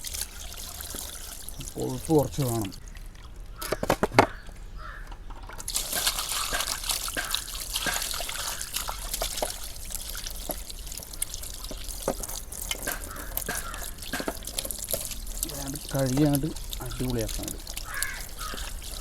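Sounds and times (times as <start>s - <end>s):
water trickling and splashing: 0.0s - 4.8s, 5.4s - 19.0s
small irregular knocks: 3.6s - 15.2s, 16.1s - 19.0s.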